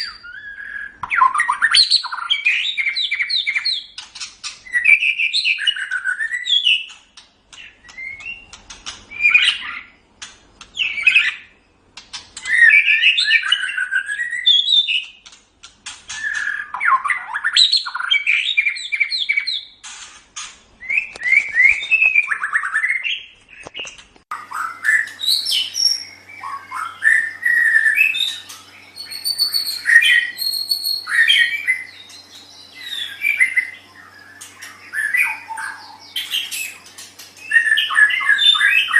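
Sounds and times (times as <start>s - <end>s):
bird singing whistled phrases: 0.0s - 3.9s, 4.6s - 6.9s, 12.4s - 15.1s, 16.1s - 19.7s, 20.8s - 23.3s, 24.4s - 36.8s, 37.4s - 38.9s
faint steady hum: 23.2s - 38.9s.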